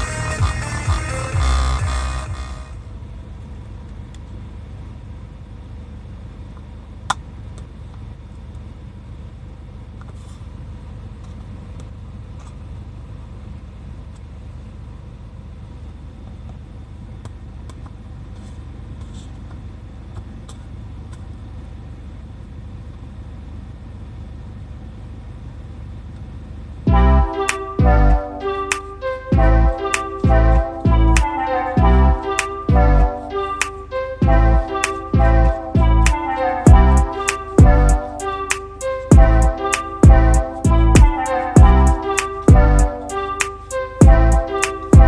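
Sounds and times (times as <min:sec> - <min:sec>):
van engine running: 0:00.0 - 0:03.6.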